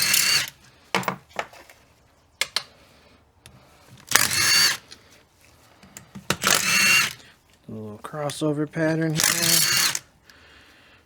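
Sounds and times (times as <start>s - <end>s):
power tool spinning socket: 0.0s - 0.6s, 4.0s - 5.0s, 6.0s - 7.3s, 8.3s - 10.1s
metal clicks of socket and bolts: 2.4s - 2.7s.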